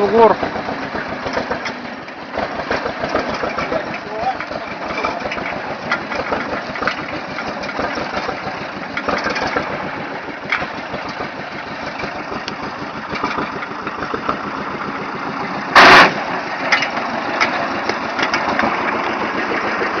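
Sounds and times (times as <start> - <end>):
vehicle engine running: 0.0 - 20.0
rattles and knocks: 0.4 - 20.0
loud bang: 15.7 - 16.3.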